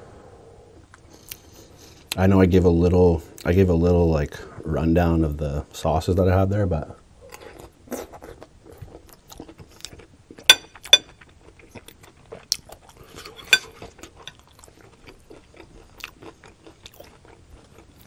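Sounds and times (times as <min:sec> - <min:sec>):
mouth chewing: 0:07.3 - 0:18.0
spoon clinking on plate: 0:10.5 - 0:11.1, 0:13.4 - 0:13.8.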